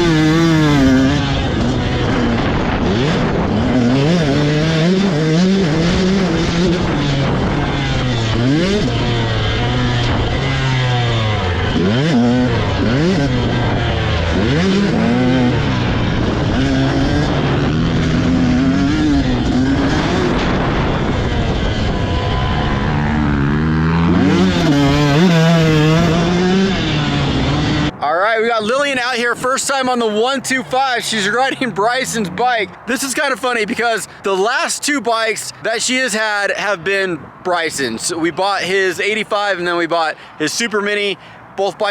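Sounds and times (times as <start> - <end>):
dirt bike engines revving: 0.0 - 41.9.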